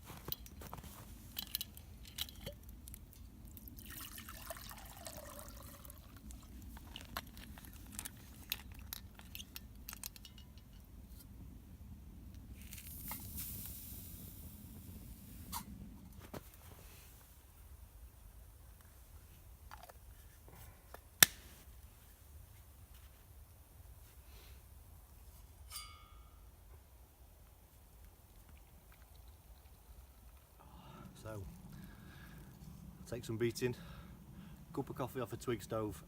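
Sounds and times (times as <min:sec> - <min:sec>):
camping kit clicks and clinks: 0:00.1 - 0:03.3, 0:06.8 - 0:10.8
liquid sounds: 0:03.4 - 0:08.9.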